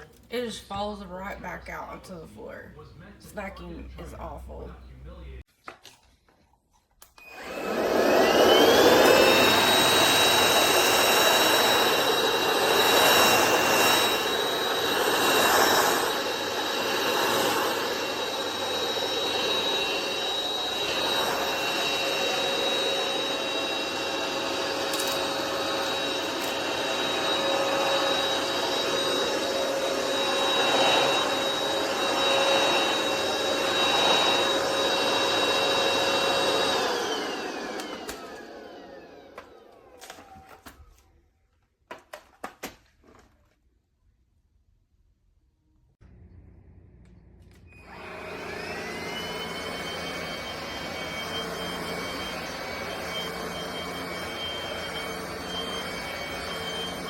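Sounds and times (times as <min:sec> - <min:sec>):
stick vacuum motor whine: 0:07.1 - 0:41.1, 0:46.0 - 0:57.0.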